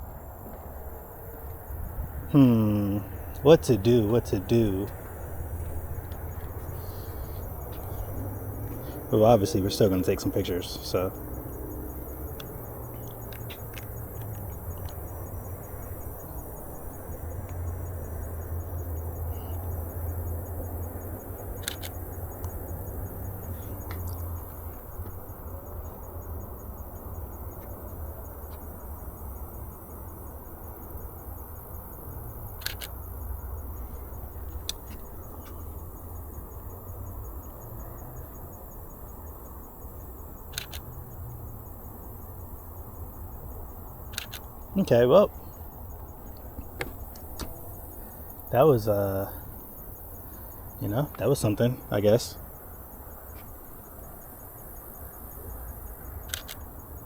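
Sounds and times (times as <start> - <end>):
insects trilling: 0.0 - 57.0
camera shutter clicking: 32.6 - 32.9.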